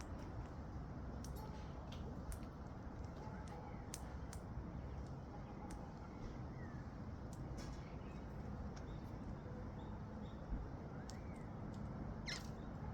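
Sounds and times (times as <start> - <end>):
faint bird chirps: 12.2 - 12.8.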